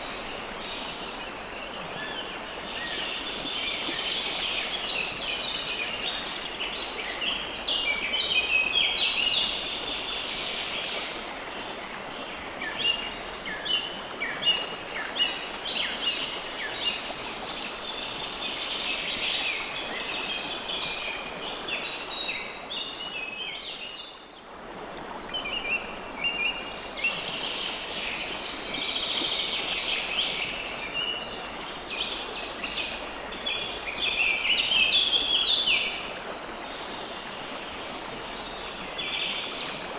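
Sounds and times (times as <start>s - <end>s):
flowing stream: 0.0s - 39.9s.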